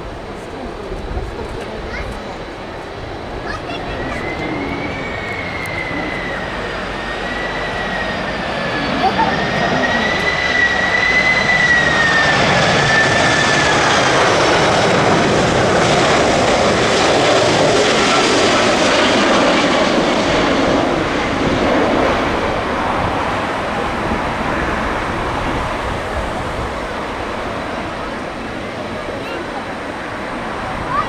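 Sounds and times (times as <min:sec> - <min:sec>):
jet engine roar: 0:00.0 - 0:31.0
jet engine whine: 0:00.0 - 0:31.0.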